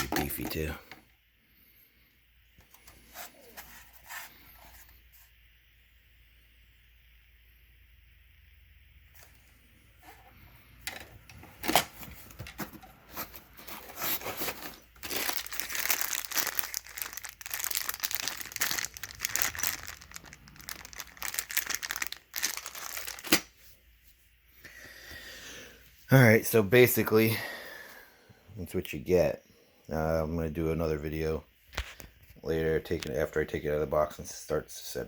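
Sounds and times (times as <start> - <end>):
packing material crinkling: 11.5 - 23.7.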